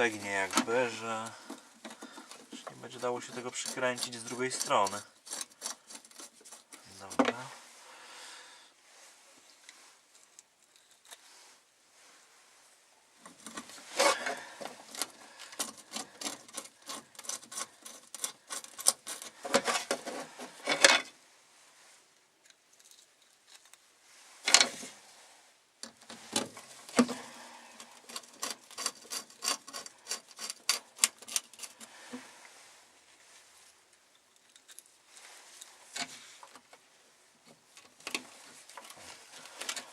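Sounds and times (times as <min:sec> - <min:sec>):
screws clicking and rattling: 0:27.9 - 0:31.9.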